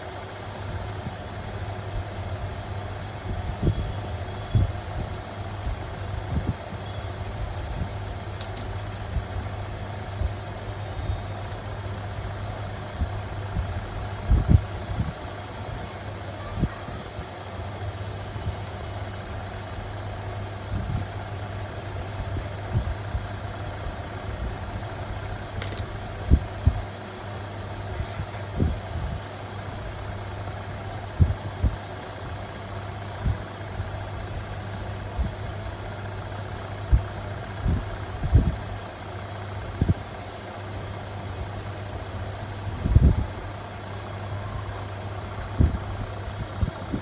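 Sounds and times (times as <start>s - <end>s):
low mechanical hum: 0.0s - 47.0s
sharp click: 8.4s - 8.8s, 25.6s - 26.0s.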